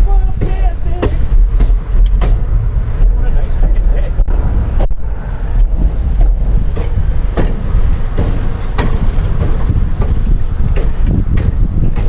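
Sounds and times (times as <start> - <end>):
train rumbling: 0.0 - 12.0
wheel clacks over rails: 5.6 - 12.0.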